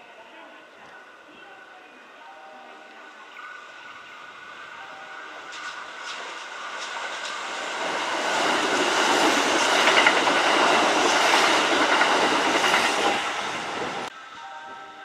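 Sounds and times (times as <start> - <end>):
electric train running by: 2.2 - 15.0
rail clatter: 5.4 - 14.1.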